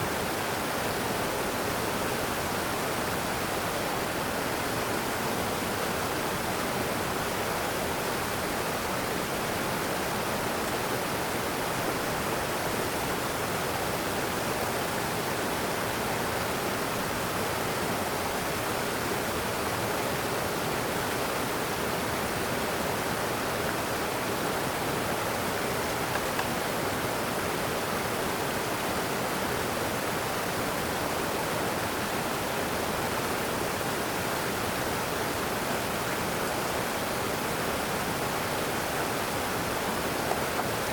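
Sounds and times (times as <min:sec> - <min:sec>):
water rushing: 0:35.7 - 0:40.9.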